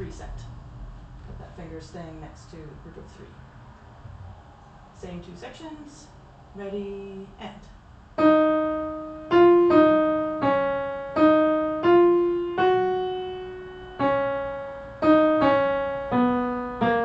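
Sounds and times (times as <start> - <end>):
slow piano phrase: 8.2 - 17.0.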